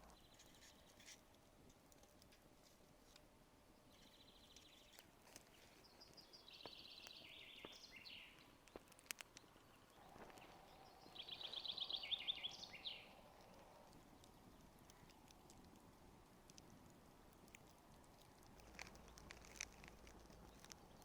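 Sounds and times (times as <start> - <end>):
campfire crackles: 0.0 - 21.0
songbird trilling song: 3.9 - 8.6, 9.2 - 15.2.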